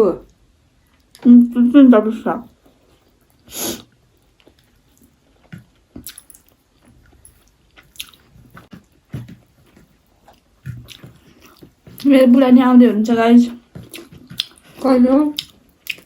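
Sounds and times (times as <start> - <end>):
person chewing food: 2.6 - 12.1, 13.6 - 16.0.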